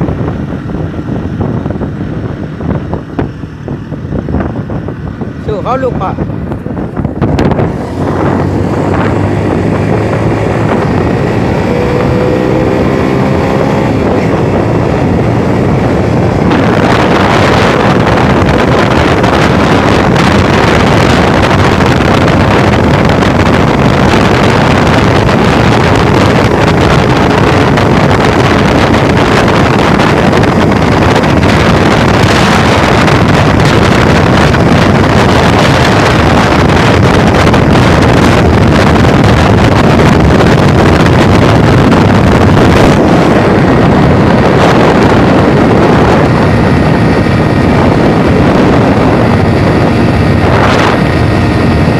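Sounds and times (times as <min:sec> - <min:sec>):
vehicle engine accelerating: 0:00.0 - 0:51.9
wind rushing on microphone: 0:00.0 - 0:51.9.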